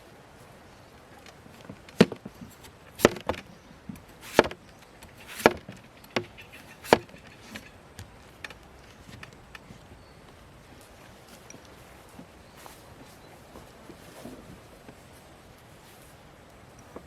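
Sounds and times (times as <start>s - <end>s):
hard chopping blows: 1.6s - 8.2s.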